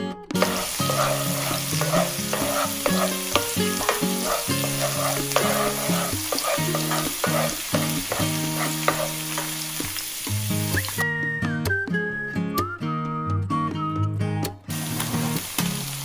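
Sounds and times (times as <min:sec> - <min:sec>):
spatula scraping and tapping pan: 0:00.4 - 0:11.0
garlic and onion sizzling in oil: 0:00.4 - 0:11.2, 0:14.7 - 0:16.0.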